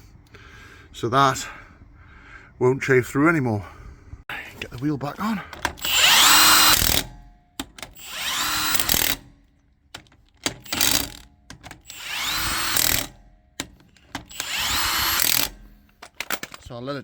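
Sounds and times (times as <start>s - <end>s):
impact wrench bursts: 5.2s - 16.7s
clicks of nuts and sockets: 5.5s - 16.8s.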